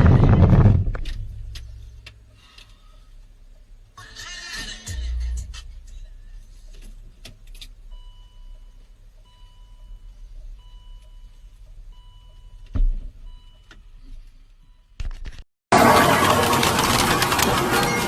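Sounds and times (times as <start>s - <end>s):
heavy low thump: 0.0s - 1.8s
low vehicle rumble: 0.0s - 14.6s.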